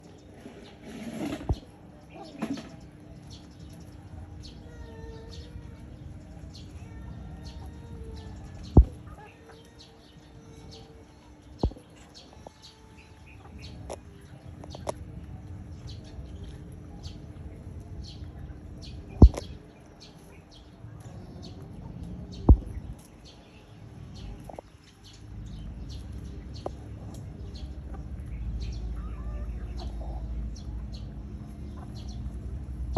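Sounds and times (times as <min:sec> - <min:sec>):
chickens clucking: 0:00.3 - 0:04.0, 0:06.4 - 0:23.4, 0:24.2 - 0:32.9
sharp clicks or knocks: 0:19.2 - 0:19.5.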